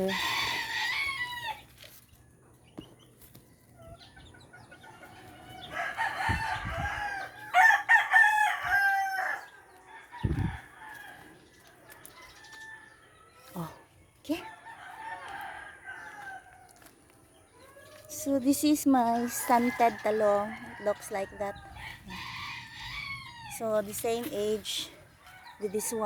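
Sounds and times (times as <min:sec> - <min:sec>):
rooster crowing: 0:00.0 - 0:01.6, 0:05.6 - 0:11.3, 0:14.6 - 0:16.8, 0:19.3 - 0:23.6.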